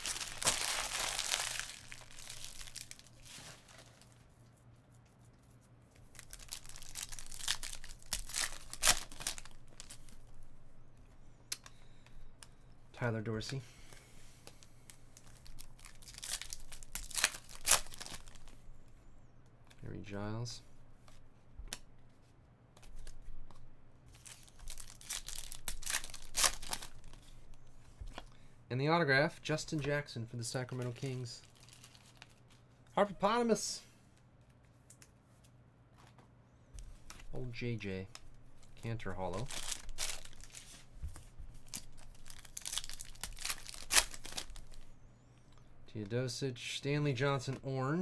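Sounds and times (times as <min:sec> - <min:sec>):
foil wrapper crinkling and tearing: 0:00.0 - 0:04.2, 0:06.1 - 0:10.1, 0:15.2 - 0:18.5, 0:24.2 - 0:27.2, 0:39.2 - 0:40.8, 0:41.6 - 0:44.9.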